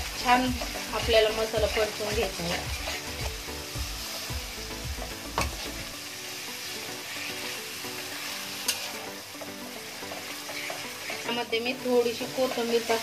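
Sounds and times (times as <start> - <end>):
paste sizzling in hot oil: 0.0 - 13.0
spatula clacking against pan: 8.6 - 11.3.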